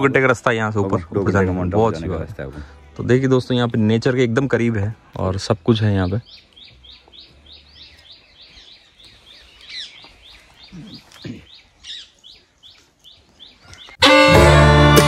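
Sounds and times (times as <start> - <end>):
birds chirping: 0.0 - 14.5
loud music with strings: 14.0 - 15.0.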